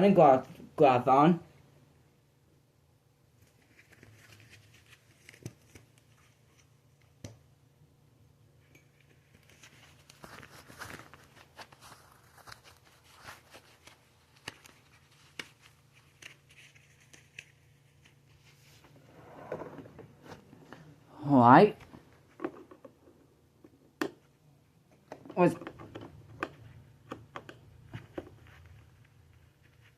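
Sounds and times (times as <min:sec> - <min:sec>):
gloves rustling and crinkling: 0:03.4 - 0:07.2, 0:09.0 - 0:19.1.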